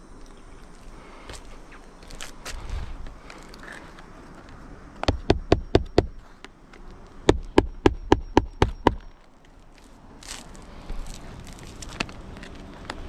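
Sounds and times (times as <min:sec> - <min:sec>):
hammer blows: 0:07.2 - 0:09.2.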